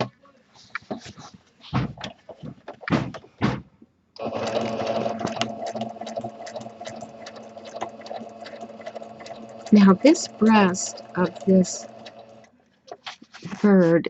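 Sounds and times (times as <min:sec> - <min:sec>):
sewing machine clattering: 0:04.2 - 0:12.5
sewing machine motor hum: 0:04.2 - 0:12.5.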